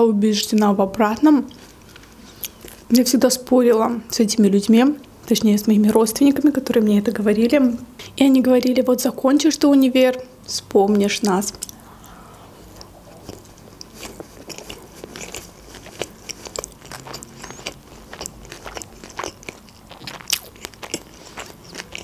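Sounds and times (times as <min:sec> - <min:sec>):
person chewing food: 0:01.5 - 0:03.0, 0:11.5 - 0:22.0.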